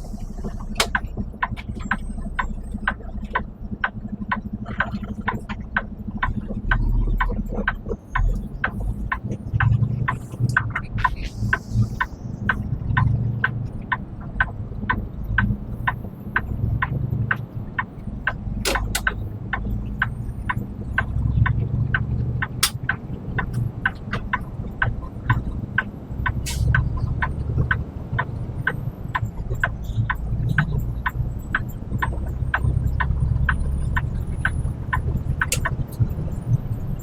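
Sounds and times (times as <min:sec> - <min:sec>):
truck engine rumble: 0:00.0 - 0:37.0
sharp regular clicking: 0:07.7 - 0:36.8.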